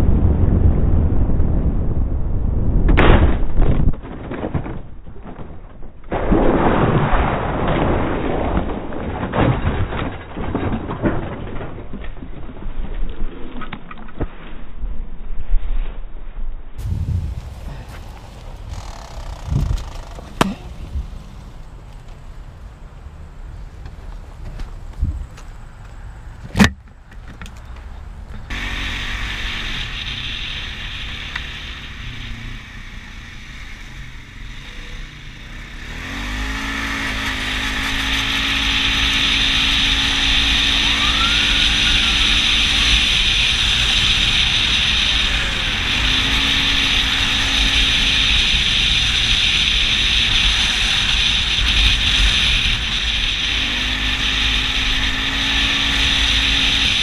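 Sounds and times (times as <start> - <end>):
wind noise: 0.0 - 57.0
sharp crack: 2.8 - 12.1, 16.8 - 22.2
motorcycle engine running: 16.8 - 21.7, 28.5 - 57.0.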